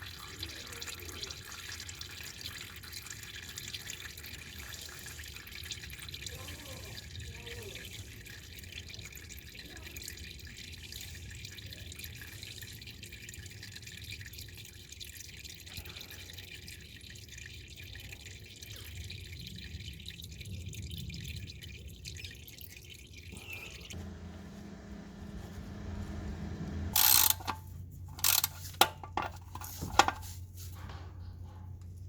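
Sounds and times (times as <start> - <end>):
oil trickling into a pan: 0.0 - 24.0.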